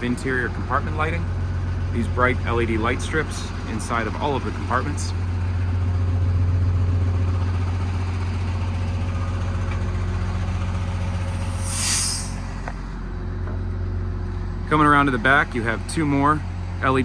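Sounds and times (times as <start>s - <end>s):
diesel truck engine idling: 0.0s - 17.0s
air hiss: 11.0s - 12.8s.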